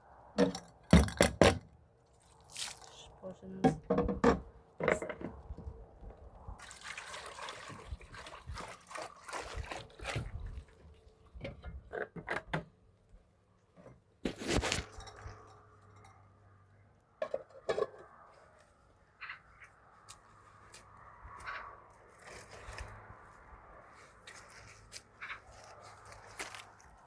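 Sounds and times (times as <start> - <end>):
water splashing and dripping: 2.3 - 3.0, 6.6 - 10.9.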